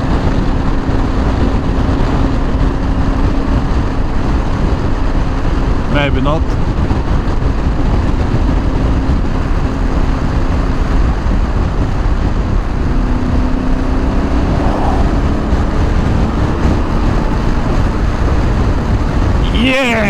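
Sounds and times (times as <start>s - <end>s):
motorcycle engine hum: 0.0s - 20.0s
road noise: 0.0s - 20.0s
wind rush: 0.0s - 20.0s.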